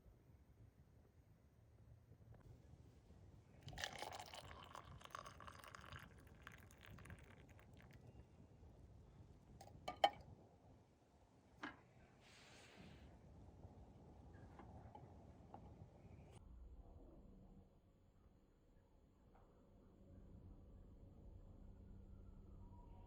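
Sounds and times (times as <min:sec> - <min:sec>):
liquid being poured: 0:03.6 - 0:08.1.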